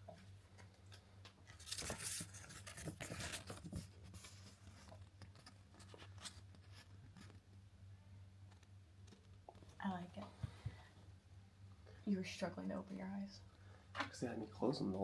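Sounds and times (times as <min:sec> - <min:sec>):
faint low hum: 0:00.0 - 0:15.0
paper tearing and crinkling: 0:01.5 - 0:04.4.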